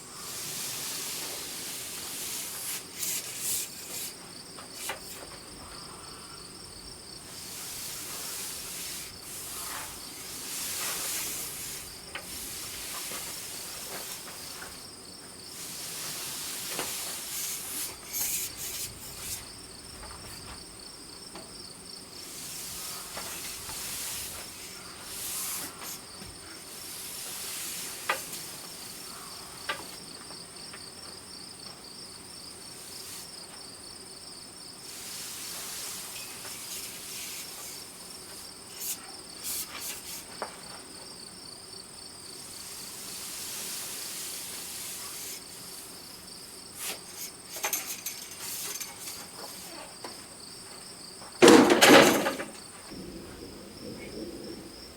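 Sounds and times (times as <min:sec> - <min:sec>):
crickets chirping: 0:00.0 - 0:54.9
scraping or rubbing: 0:02.4 - 0:04.2.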